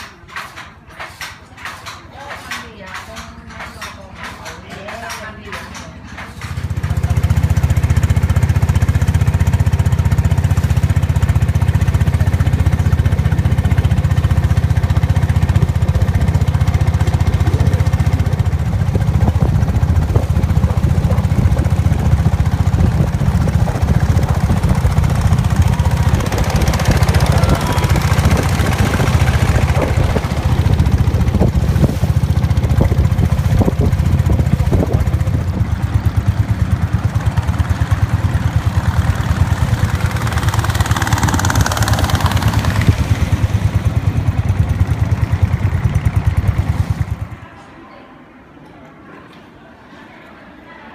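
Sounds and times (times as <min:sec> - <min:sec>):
boat engine throbbing: 0:00.0 - 0:47.4
wind and water hissing: 0:18.8 - 0:35.3.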